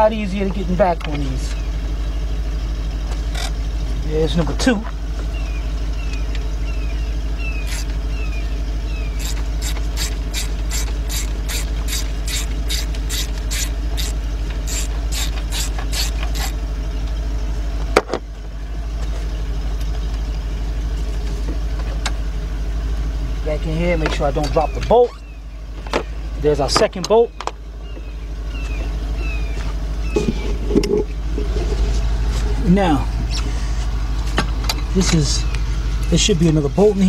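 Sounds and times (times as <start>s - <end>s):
low hum: 0.0s - 37.0s
ratchet clicking: 7.6s - 8.0s, 9.1s - 16.6s.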